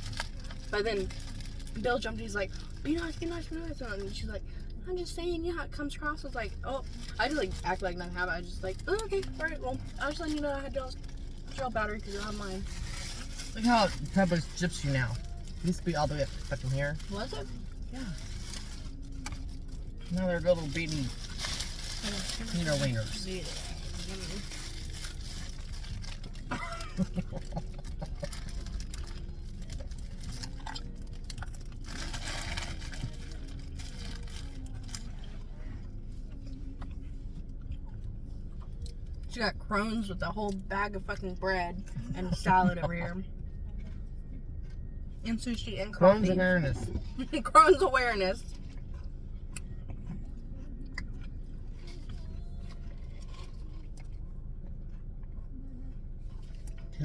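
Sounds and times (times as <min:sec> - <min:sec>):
low hum: 0:00.0 - 0:57.0
steady low rumble: 0:00.0 - 0:57.0
food being chewed: 0:23.8 - 0:39.3, 0:43.4 - 0:45.2, 0:48.5 - 0:57.0.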